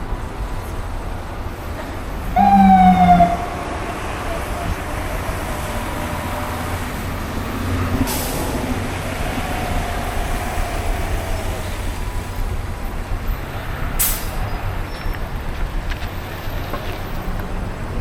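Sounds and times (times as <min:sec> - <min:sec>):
heavy traffic engine rumble: 0:00.0 - 0:18.0
air-brake hisses: 0:14.0 - 0:14.5.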